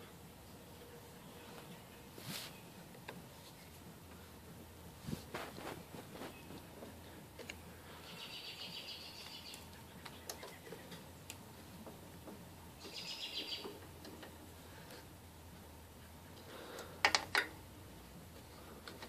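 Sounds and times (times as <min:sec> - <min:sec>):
high bird trills: 0:08.0 - 0:11.0, 0:12.8 - 0:13.8.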